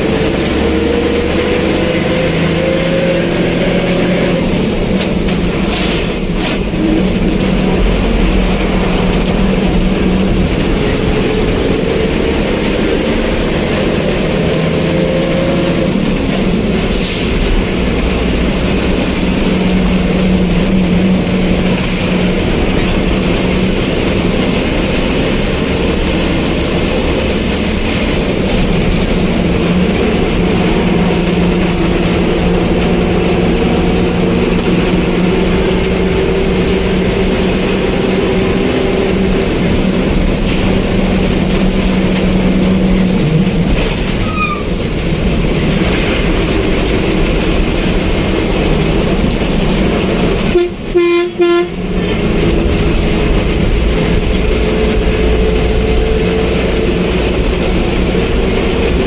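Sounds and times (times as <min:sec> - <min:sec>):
vehicle engine and road noise: 0:00.0 - 0:59.0
short horn toot: 0:50.5 - 0:51.8.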